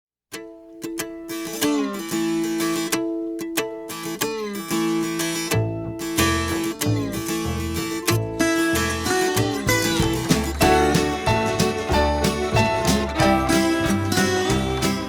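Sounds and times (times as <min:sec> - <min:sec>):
acoustic guitar picking with slides: 0:00.4 - 0:15.0
bass line: 0:05.6 - 0:15.0.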